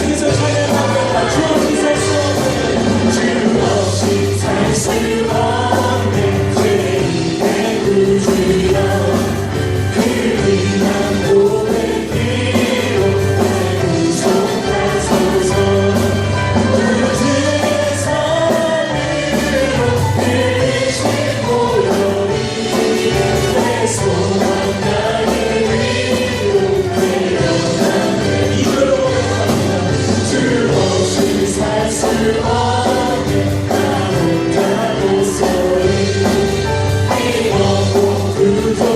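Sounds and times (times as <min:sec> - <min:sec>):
group singing worship song: 0:00.0 - 0:38.9
instrumental accompaniment with bass: 0:00.0 - 0:38.9.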